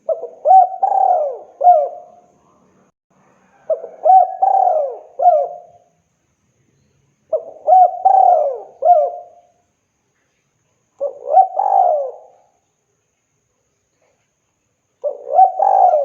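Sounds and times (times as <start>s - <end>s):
dove cooing: 0.0s - 2.3s, 3.5s - 5.9s, 7.3s - 9.5s, 11.0s - 12.6s, 15.0s - 16.0s.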